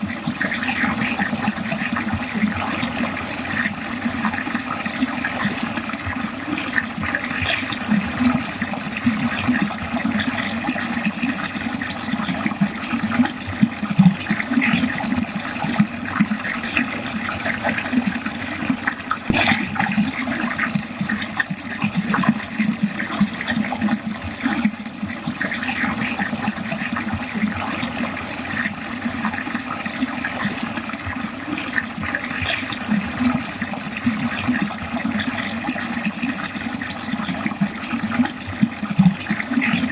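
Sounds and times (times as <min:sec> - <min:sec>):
water gurgling down a drain: 0:00.0 - 0:39.9
sharp water splash: 0:19.2 - 0:21.2.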